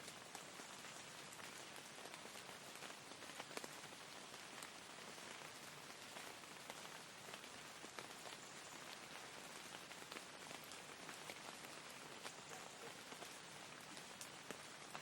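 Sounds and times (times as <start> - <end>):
raindrops ticking: 0.0 - 15.0
soft steady rain: 0.0 - 15.0.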